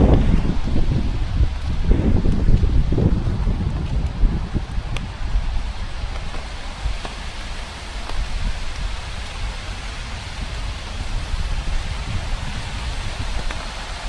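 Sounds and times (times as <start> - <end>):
rain drop ticks: 0.0 - 9.6, 13.0 - 14.0
low rumble: 0.0 - 14.0
steady rain falling: 0.0 - 14.0.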